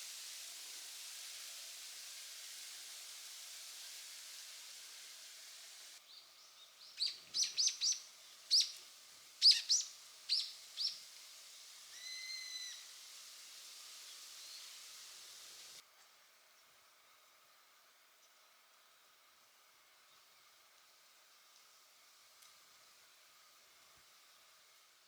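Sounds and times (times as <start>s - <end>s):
steady hiss: 0.0s - 25.0s
bird whistled note: 12.0s - 12.8s.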